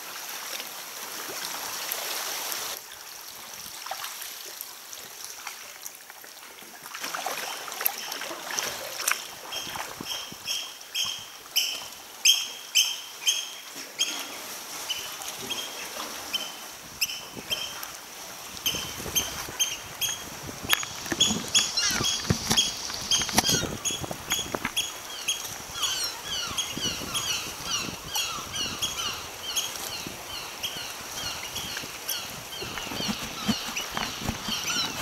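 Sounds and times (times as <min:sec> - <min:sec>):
water splashing from paddling: 0:06.6 - 0:10.0, 0:17.4 - 0:25.8, 0:30.9 - 0:35.0
paddle knocking: 0:18.7 - 0:24.8, 0:32.4 - 0:35.0
flock of birds calling: 0:18.7 - 0:35.0.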